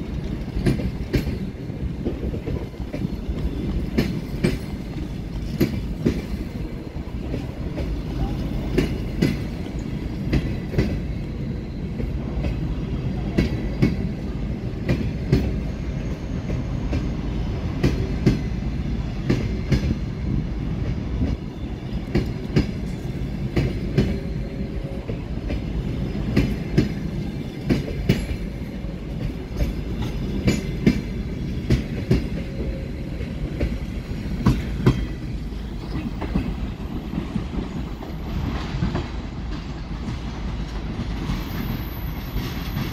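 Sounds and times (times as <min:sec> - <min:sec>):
train wheels clacking over rail joints: 0:00.0 - 0:11.2, 0:21.2 - 0:42.9
low train rumble: 0:00.0 - 0:42.9.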